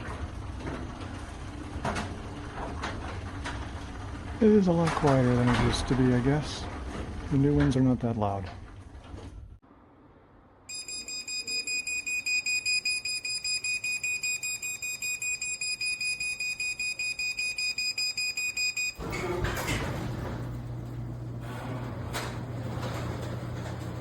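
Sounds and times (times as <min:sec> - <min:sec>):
rapid electronic warning beeps: 0:10.7 - 0:19.0
garage door opener motor humming: 0:10.7 - 0:24.0
garage door rattling: 0:18.9 - 0:24.0.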